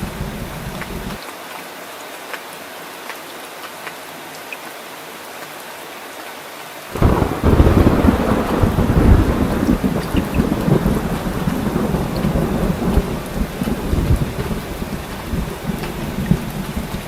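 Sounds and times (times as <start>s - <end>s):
deep rumble of thunder: 0.0s - 1.2s, 7.0s - 17.0s
raindrop ticks: 0.0s - 1.3s, 7.0s - 17.0s
steady rain: 0.0s - 17.0s.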